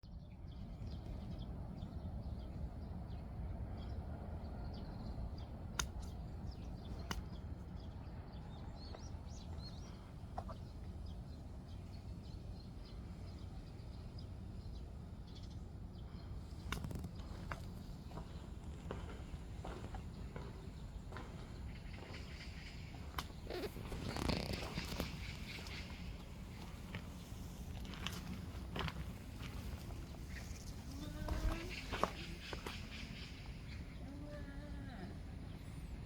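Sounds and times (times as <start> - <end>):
low background rumble: 0.0 - 36.0
sharp clicks: 16.7 - 17.6
faint high bird chirps: 29.8 - 35.8.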